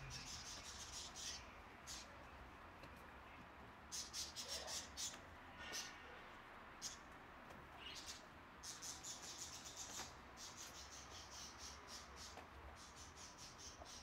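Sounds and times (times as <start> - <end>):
low steady background rumble: 0.0 - 10.5
small birds chirping: 0.0 - 14.0.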